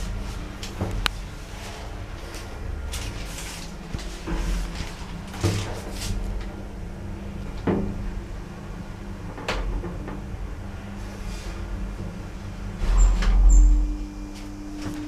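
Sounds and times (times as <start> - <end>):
lift humming: 0.0 - 15.0.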